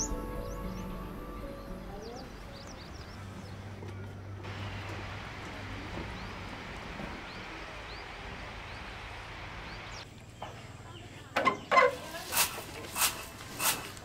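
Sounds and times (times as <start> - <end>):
bird chirping: 0.0 - 4.1
steady outdoor hiss: 0.0 - 14.0.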